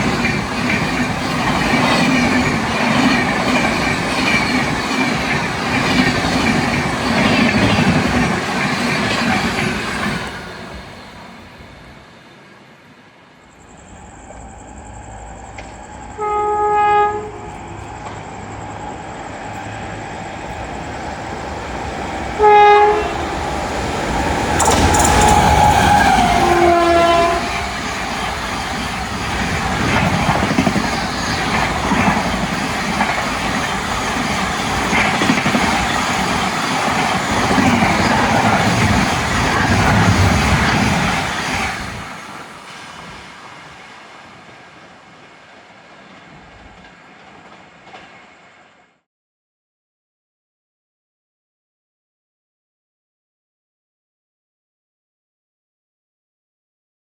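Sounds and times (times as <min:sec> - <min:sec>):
train rumble: 0:00.0 - 0:49.0
locomotive horn blasts: 0:16.1 - 0:17.8, 0:22.4 - 0:23.4, 0:26.1 - 0:27.6
wheel clatter: 0:24.5 - 0:26.3.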